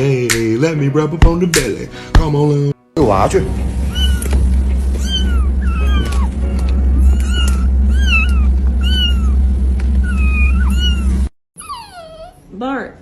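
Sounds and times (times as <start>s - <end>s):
steady low hum: 3.0s - 11.3s
kitten meowing: 3.9s - 4.3s, 5.0s - 6.3s, 7.0s - 9.4s, 10.1s - 12.3s.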